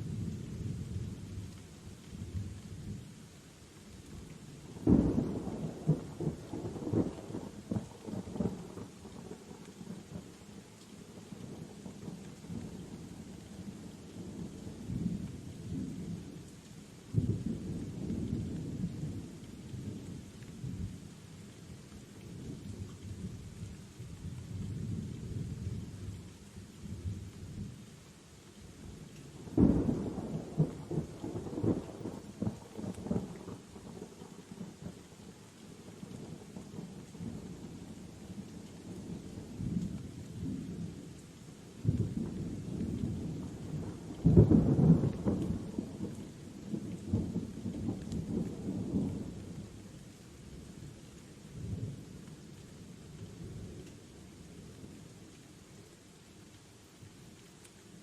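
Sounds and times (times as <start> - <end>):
steady rain hiss: 0.0 - 58.0
rolling thunder: 41.8 - 46.2.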